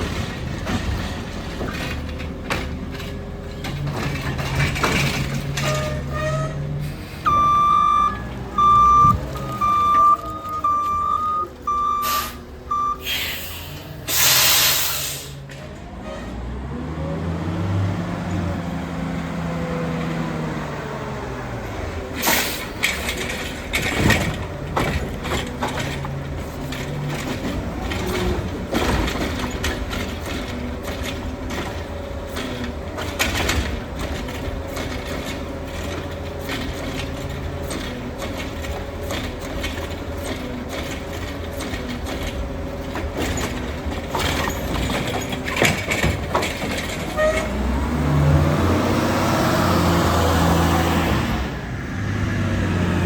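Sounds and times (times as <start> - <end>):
truck mechanism clanking: 0.0 - 16.5, 22.1 - 48.9
truck engine revving: 2.0 - 53.0
air brake hiss: 13.0 - 15.4, 22.2 - 22.8.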